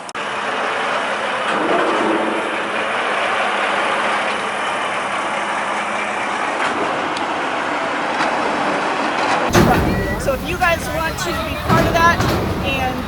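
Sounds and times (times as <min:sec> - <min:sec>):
truck engine running: 0:09.5 - 0:13.0.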